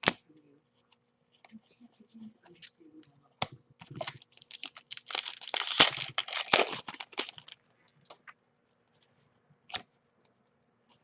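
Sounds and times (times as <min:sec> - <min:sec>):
wrapper tearing and crinkling: 0:04.0 - 0:07.6.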